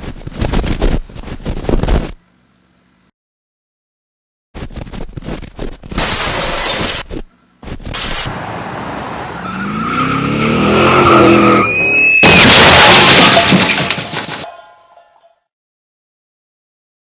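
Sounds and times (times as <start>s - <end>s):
car engine revving: 8.0s - 11.7s.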